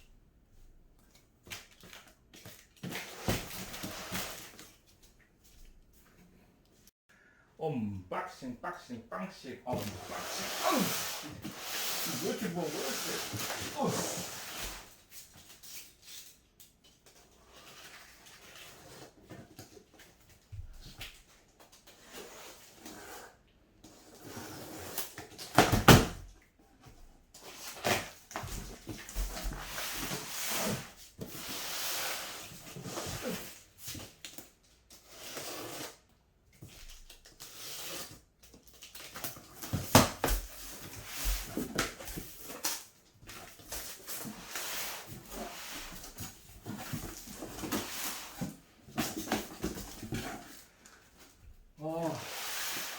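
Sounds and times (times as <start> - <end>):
cardboard box rustling and scraping: 43.3 - 51.4.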